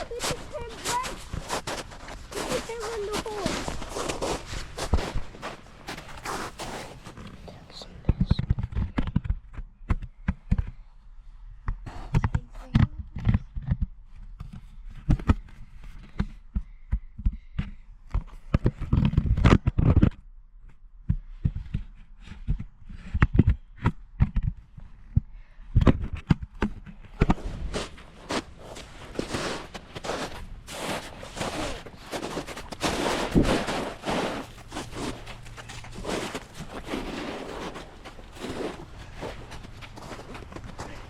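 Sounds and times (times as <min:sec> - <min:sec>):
footsteps thumping: 0:00.0 - 0:07.4, 0:27.2 - 0:41.0.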